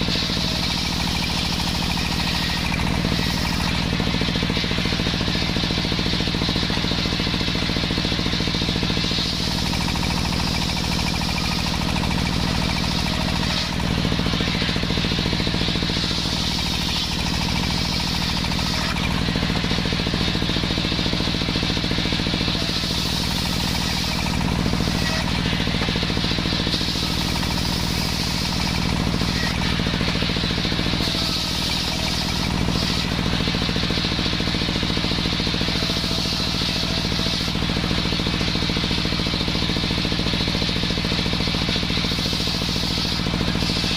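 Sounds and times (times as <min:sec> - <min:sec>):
circular saw engine hum: 0:00.0 - 0:43.9
saw blade whining through wood: 0:00.0 - 0:43.9.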